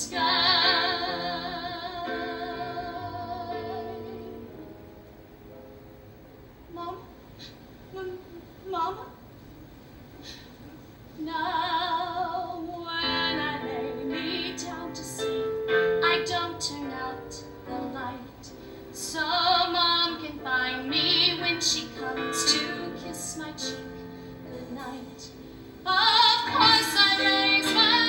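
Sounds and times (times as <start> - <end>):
woman singing with vibrato: 0.0 - 4.5, 11.2 - 15.4, 19.0 - 28.0.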